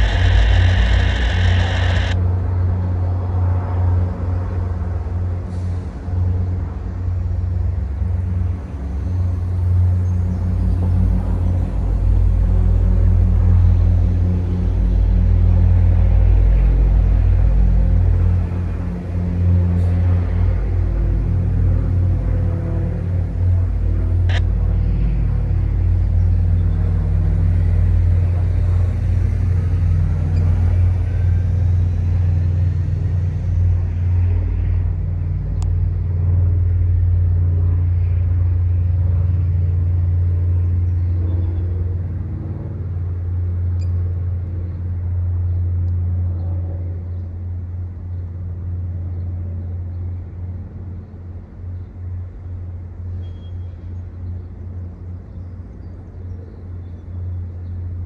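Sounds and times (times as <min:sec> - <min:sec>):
diesel train engine rumbling: 0:00.0 - 0:02.2.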